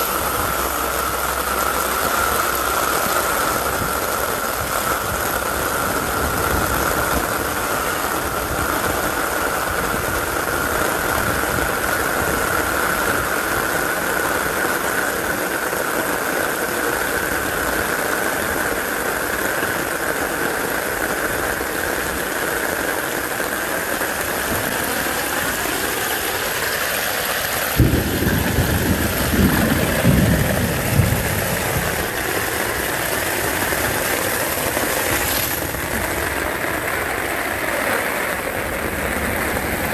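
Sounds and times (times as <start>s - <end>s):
heavy rain: 0.0s - 39.9s
water rushing through drain: 0.0s - 39.9s
low rumble with bumps: 27.8s - 32.9s.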